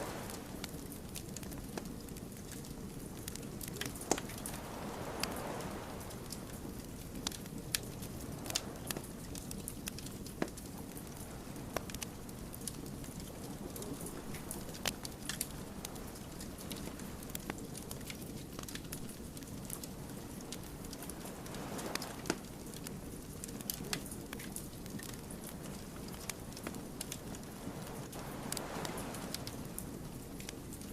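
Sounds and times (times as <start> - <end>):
low rush of burning logs: 0.0 - 30.9
campfire pops and snaps: 20.5 - 29.6.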